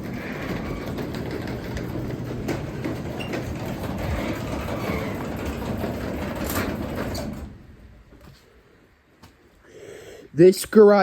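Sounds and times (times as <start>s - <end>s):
clicks and rattles: 0.0s - 7.6s
garage door opener rumbling: 0.0s - 8.2s.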